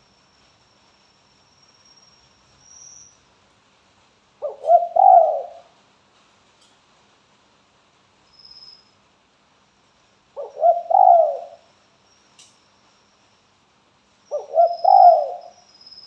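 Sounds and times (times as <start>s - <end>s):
dove cooing: 4.4s - 5.6s, 10.4s - 11.7s, 14.3s - 15.6s.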